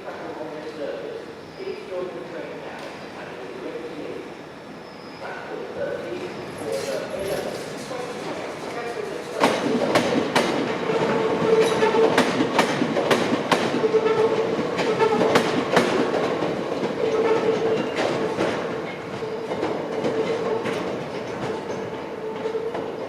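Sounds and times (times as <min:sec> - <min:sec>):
train hum: 0:00.0 - 0:23.0
train wheels clicking over rail joints: 0:06.8 - 0:23.0.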